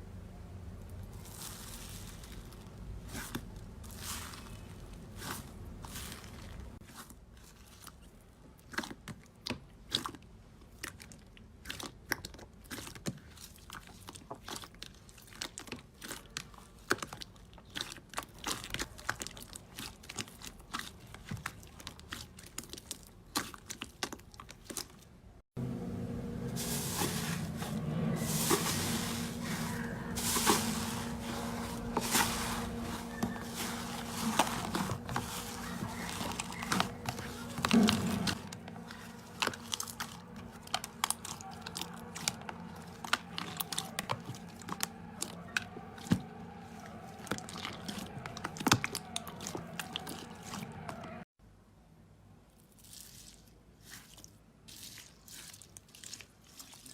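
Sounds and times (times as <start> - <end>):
low steady hum: 25.6 - 48.4
dry soap crunching being cut: 26.6 - 51.2.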